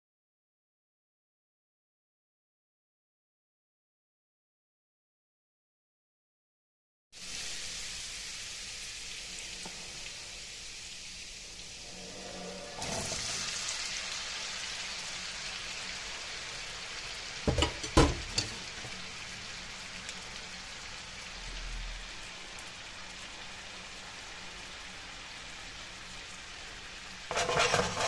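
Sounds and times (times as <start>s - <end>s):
potatoes sizzling in hot oil: 7.2s - 28.0s.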